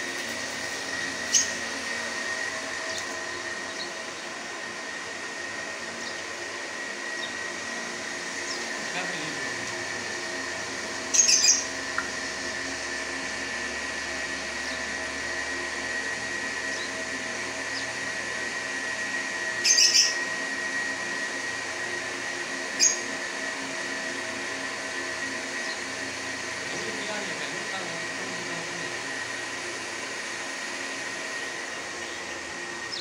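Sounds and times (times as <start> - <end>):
steady mechanical hum: 0.0 - 33.0
small bird chirping: 1.3 - 1.6, 6.0 - 6.3, 11.1 - 11.7, 19.6 - 20.2.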